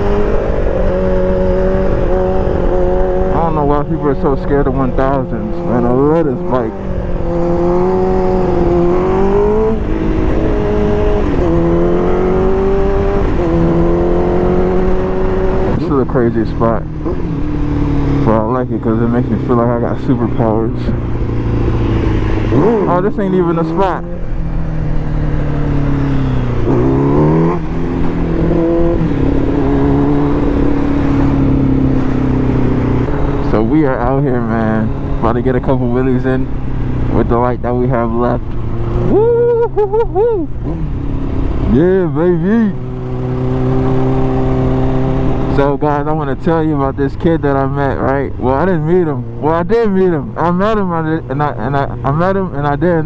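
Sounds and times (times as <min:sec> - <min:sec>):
sport bike engine: 0:00.0 - 0:53.0
wind rushing over microphone: 0:04.7 - 0:37.6.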